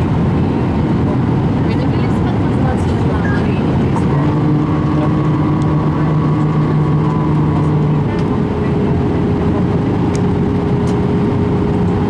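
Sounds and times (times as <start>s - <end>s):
jet engines running loudly: 0.0s - 12.0s
humming tones: 2.8s - 12.0s.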